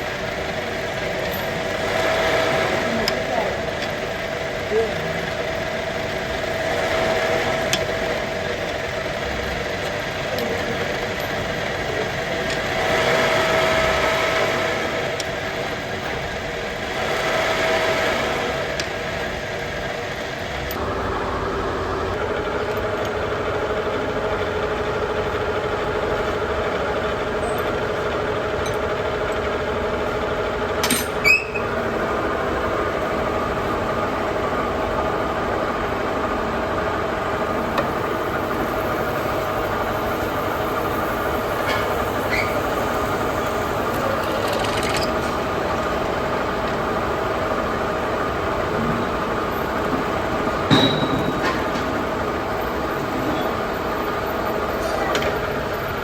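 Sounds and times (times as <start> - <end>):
workshop machinery humming: 0.0 - 56.0
sharp metallic clicks: 43.9 - 45.2.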